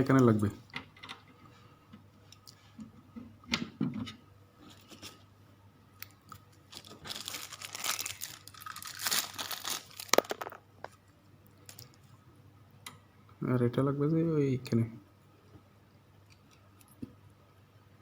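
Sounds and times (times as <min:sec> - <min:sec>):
crinkling rustling and tearing: 0:06.0 - 0:11.0, 0:11.6 - 0:12.1.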